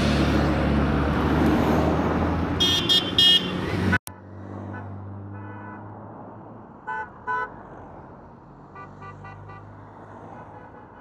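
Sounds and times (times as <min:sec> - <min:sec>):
vehicle horn toots: 0:02.6 - 0:05.8.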